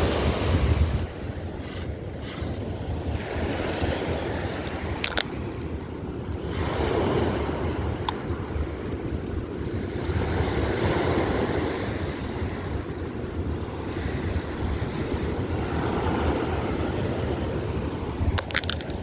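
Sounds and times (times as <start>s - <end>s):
river current rushing: 0.0s - 5.1s
wind buffeting microphone: 0.0s - 19.0s.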